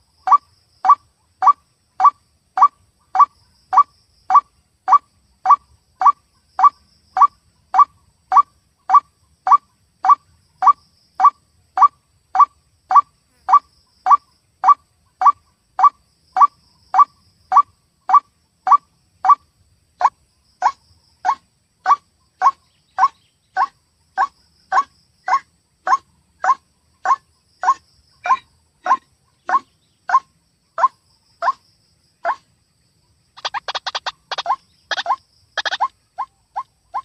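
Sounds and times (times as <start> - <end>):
waterhen calling: 33.4 - 37.0.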